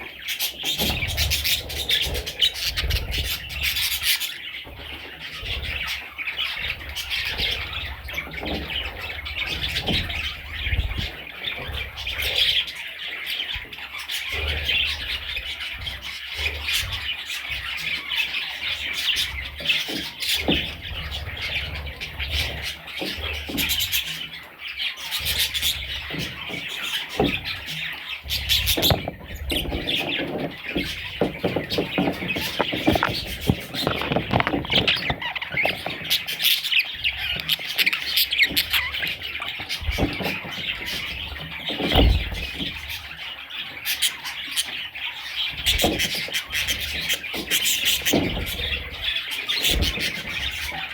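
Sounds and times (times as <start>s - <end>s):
budgerigar chicks chirping: 0.0s - 50.9s
rustling: 28.3s - 41.1s
soft thumps: 28.7s - 36.3s.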